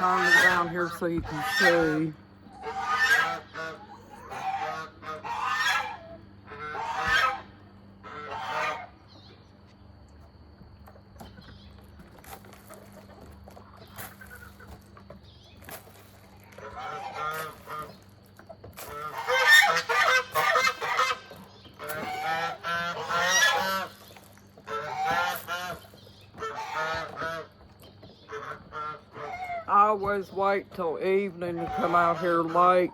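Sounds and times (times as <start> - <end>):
goose honking: 0.0 - 9.0, 16.4 - 18.1, 18.8 - 27.6, 28.2 - 32.9.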